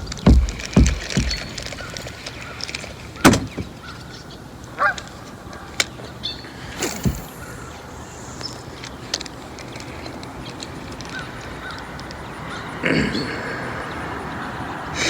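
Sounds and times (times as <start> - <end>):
paddle knocking on plastic hull: 0.0 - 1.8.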